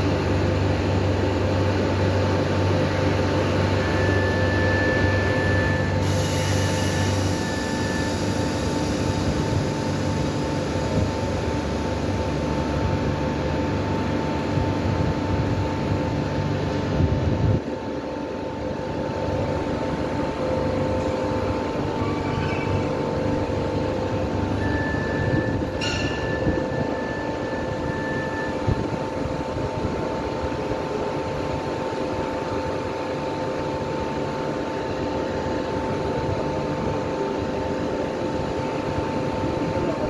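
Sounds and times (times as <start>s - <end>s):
steady whining tones: 0.0s - 17.0s
train equipment humming: 0.0s - 40.0s.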